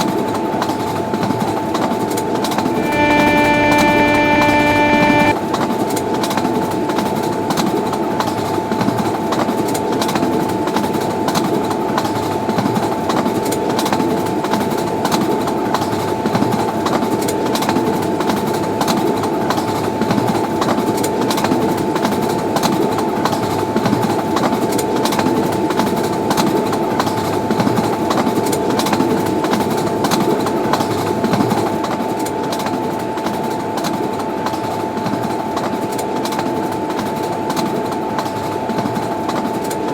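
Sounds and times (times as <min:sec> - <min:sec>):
constant tone: 0:02.6 - 0:05.4.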